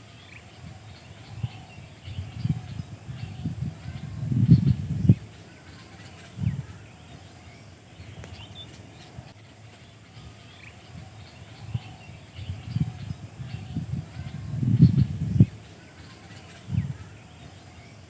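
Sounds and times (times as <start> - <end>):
faint bird chirps: 0.0 - 18.0.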